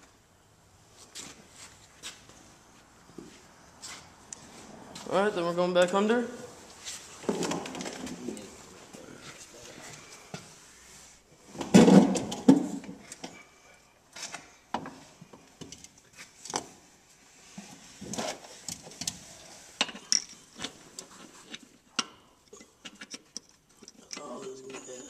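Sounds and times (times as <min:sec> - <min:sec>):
tools clicking and scraping: 0:18.1 - 0:25.0.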